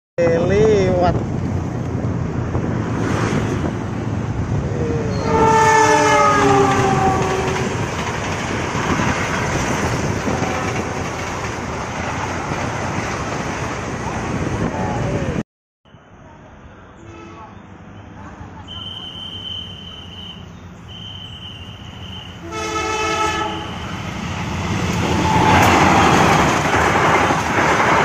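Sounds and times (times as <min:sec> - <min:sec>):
train passing on track: 0:00.2 - 0:28.0
locomotive horn chord: 0:05.2 - 0:07.6, 0:22.4 - 0:23.8.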